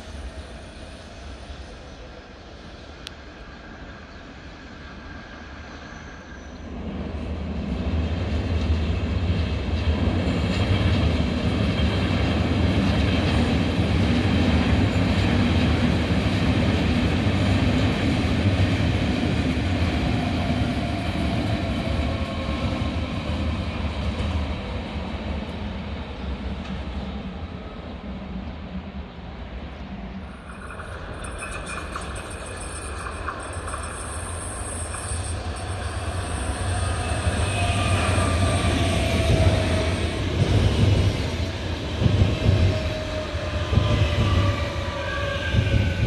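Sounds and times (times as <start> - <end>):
electric train rumbling past: 0.0 - 46.0.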